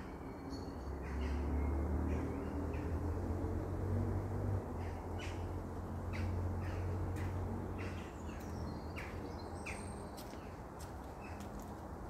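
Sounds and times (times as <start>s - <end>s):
small birds chirping: 6.2s - 11.7s.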